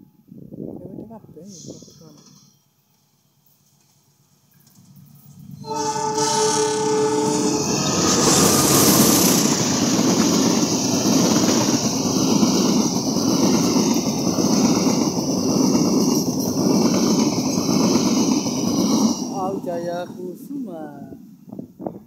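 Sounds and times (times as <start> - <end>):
train passing close by: 1.7 - 21.8
locomotive horn: 5.6 - 9.5.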